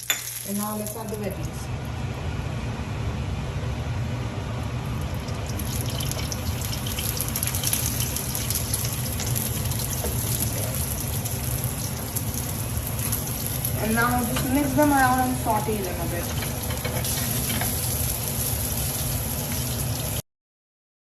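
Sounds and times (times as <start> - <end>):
vegetables sizzling in a frying pan: 5.6 - 20.2.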